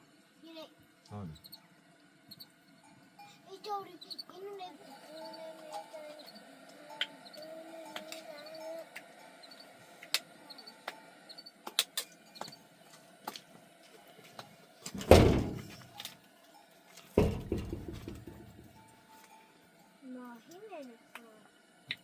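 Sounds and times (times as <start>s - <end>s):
heavy thumps: 14.9s - 15.9s, 17.2s - 18.7s.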